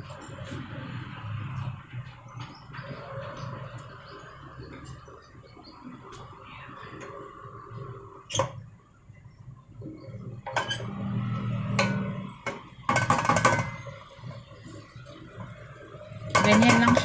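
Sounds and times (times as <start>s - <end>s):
pots and utensils clinking: 10.4s - 10.9s, 11.8s - 13.8s, 16.2s - 17.0s.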